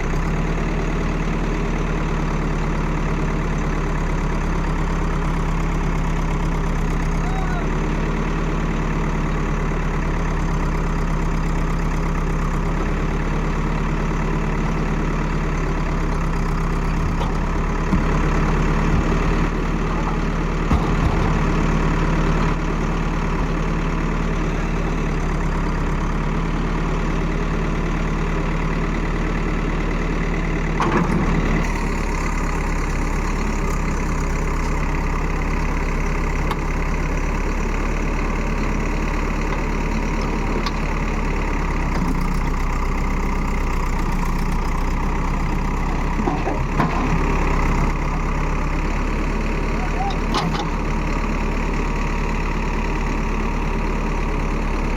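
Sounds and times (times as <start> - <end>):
heavy engine running: 0.0 - 54.9
knocks and clatters: 20.6 - 22.6.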